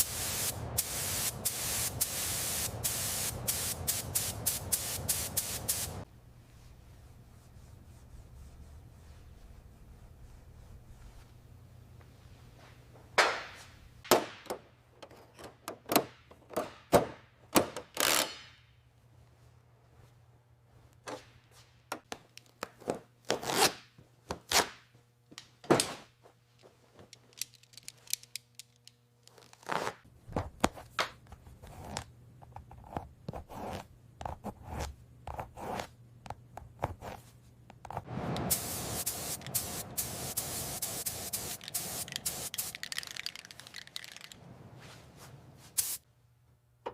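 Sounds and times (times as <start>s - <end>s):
steady hiss: 0.0s - 6.1s, 38.1s - 44.4s, 45.7s - 46.0s
tools knocking and scraping: 14.1s - 18.4s.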